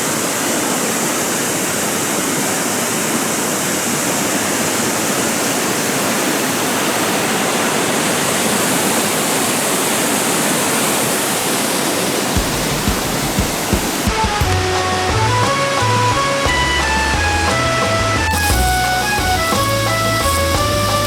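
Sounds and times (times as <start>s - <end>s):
stream water rushing: 0.0s - 21.0s
low thumps: 12.4s - 21.0s.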